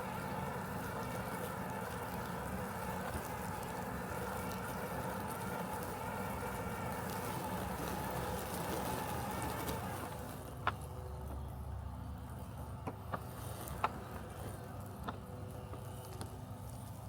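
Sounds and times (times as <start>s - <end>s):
robotic lawn mower humming: 0.0s - 17.0s.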